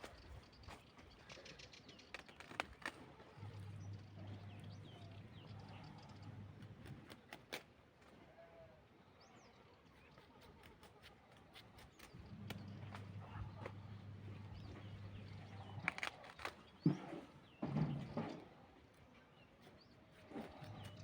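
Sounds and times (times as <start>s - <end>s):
low hum: 3.3s - 7.0s, 12.2s - 16.0s.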